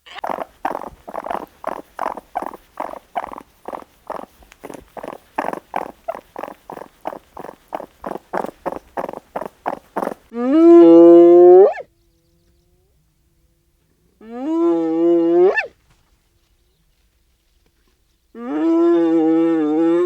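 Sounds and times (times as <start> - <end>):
animal panting: 0.1 - 10.3.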